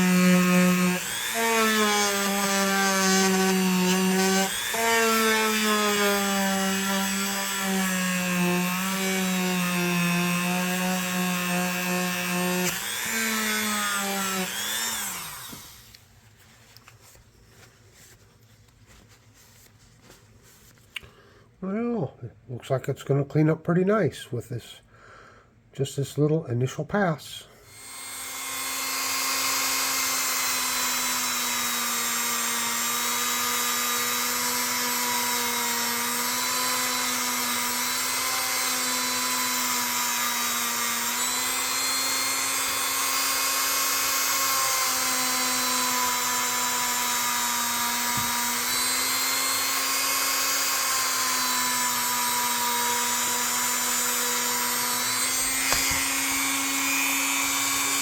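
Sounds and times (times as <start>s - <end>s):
electric rotary tool running: 0.0s - 15.9s, 27.7s - 58.0s.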